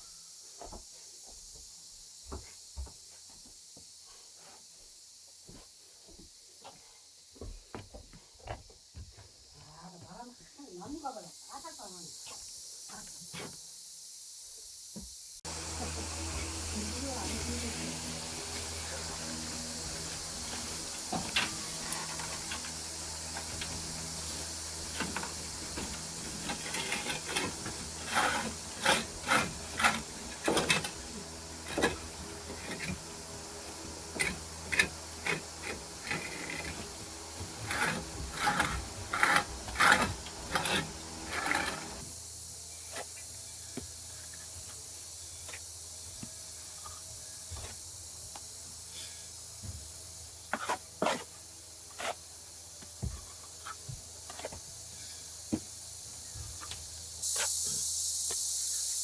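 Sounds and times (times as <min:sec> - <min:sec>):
steady high hiss: 0:09.7 - 0:50.4, 0:51.3 - 0:59.0
rough scraping strokes: 0:15.5 - 0:42.1.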